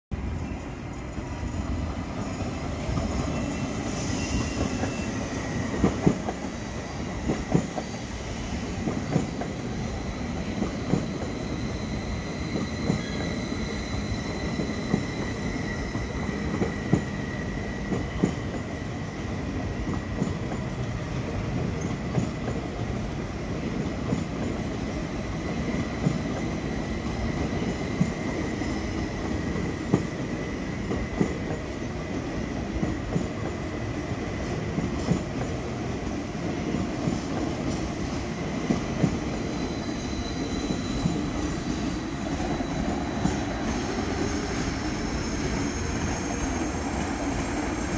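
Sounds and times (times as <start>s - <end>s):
train wheels rumbling on rail: 0.2s - 47.9s
high wheel squeal: 1.2s - 5.9s, 9.9s - 18.5s, 38.4s - 47.9s.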